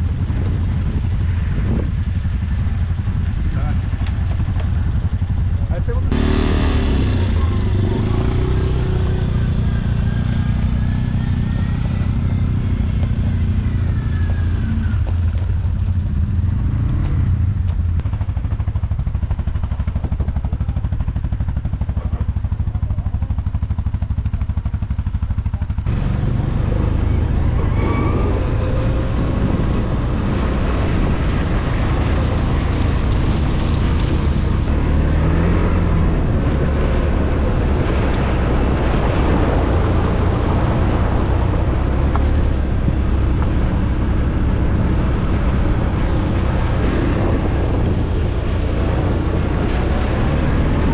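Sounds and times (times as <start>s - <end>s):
quad bike engine running: 0.0s - 50.9s.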